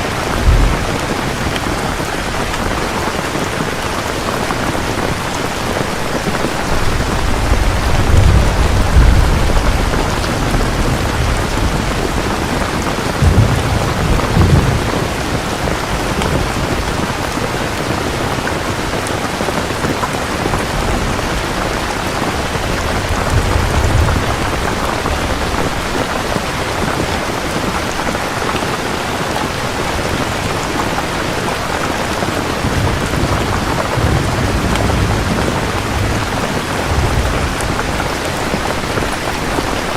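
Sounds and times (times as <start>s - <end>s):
low rolling thunder: 0.0s - 3.0s, 6.5s - 17.6s, 20.6s - 26.8s, 32.4s - 39.2s
steady rain pouring: 0.0s - 39.9s.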